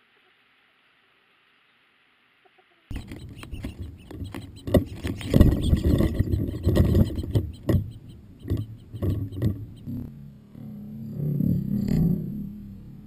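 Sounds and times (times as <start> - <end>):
bird tapping at a feeder: 2.9 - 10.0
low rumble: 5.3 - 13.0.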